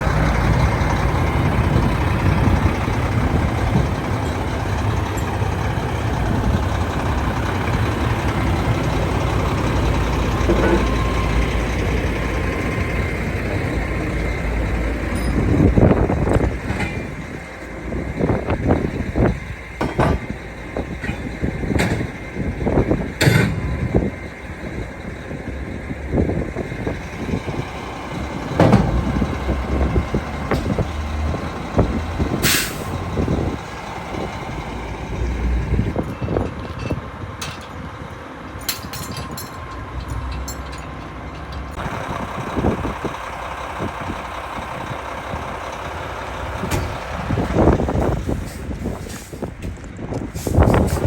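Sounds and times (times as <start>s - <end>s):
chassis rattles and knocks: 0.0s - 11.9s, 15.0s - 24.1s, 26.8s - 32.4s, 35.6s - 38.0s, 38.6s - 42.9s
truck engine running: 0.0s - 51.0s
air brake hiss: 32.4s - 33.0s, 50.3s - 51.0s.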